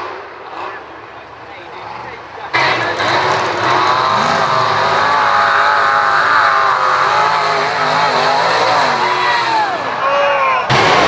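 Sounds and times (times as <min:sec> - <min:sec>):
truck engine revving high: 0:00.0 - 0:11.0.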